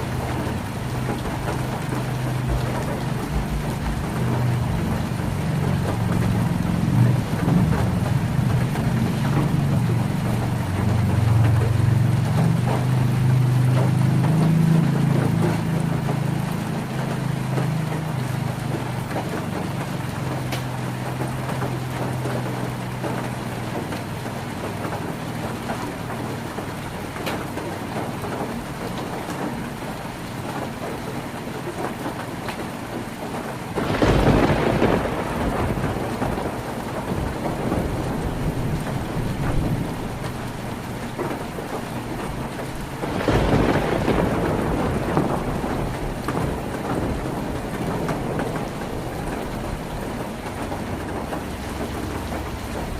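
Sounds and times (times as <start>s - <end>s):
thunder rumbling: 0.0s - 17.6s, 33.5s - 52.9s
heavy rain on a tin roof: 0.0s - 52.9s.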